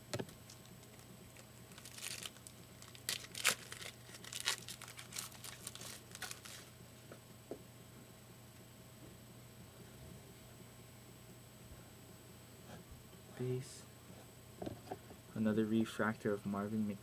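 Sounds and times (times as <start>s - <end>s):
packaging crinkling and rustling: 0.4s - 6.7s.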